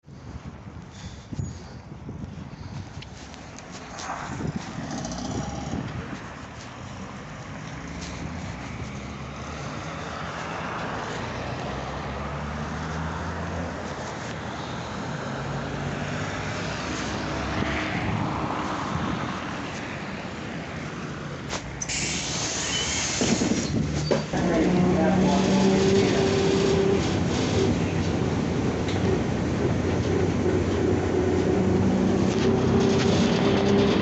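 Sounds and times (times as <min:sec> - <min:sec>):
tyre and road noise: 0:00.0 - 0:34.0
trolleybus electric drive hum: 0:00.4 - 0:34.0
loud hiss: 0:21.8 - 0:23.8.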